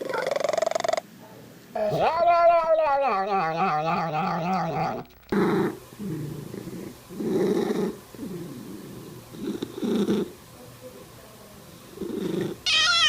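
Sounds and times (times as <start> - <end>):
cat growling purr: 4.5 - 10.3, 12.0 - 13.0
cat yowling: 12.6 - 13.0.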